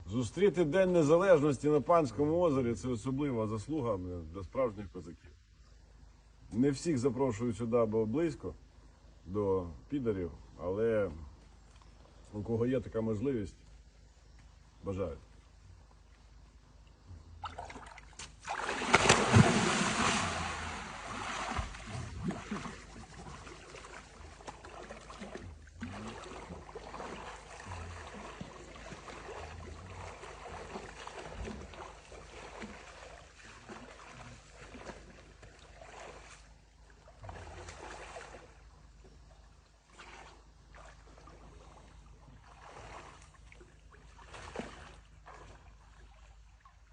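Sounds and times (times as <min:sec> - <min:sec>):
water splashing and sloshing: 0:15.3 - 0:46.9
big water splash: 0:17.4 - 0:36.4.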